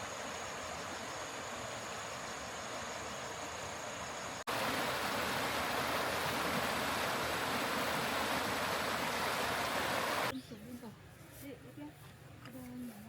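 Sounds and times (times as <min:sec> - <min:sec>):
running water rushing: 0:00.0 - 0:10.3.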